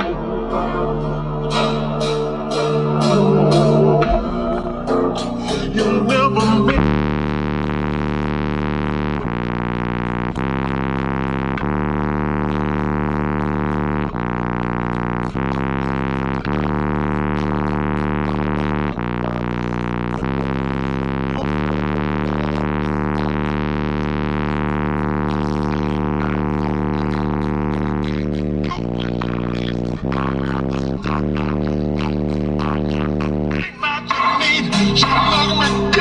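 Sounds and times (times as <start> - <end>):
droning bass music: 0.0 - 36.0.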